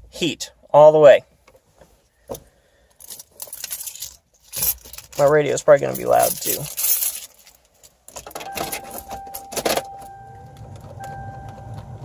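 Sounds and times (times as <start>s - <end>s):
car keys jangling: 3.0s - 12.0s
electronic warning tone: 8.5s - 11.8s
low hum: 8.6s - 12.0s.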